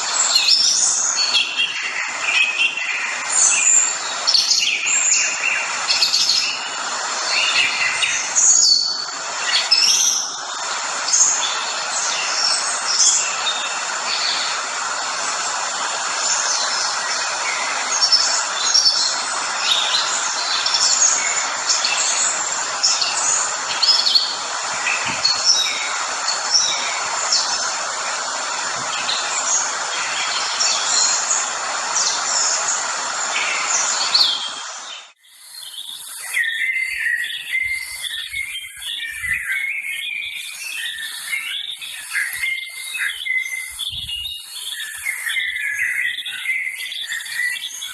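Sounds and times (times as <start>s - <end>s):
steady rushing noise: 0.0s - 35.2s
birds chirping and calling: 35.4s - 47.9s.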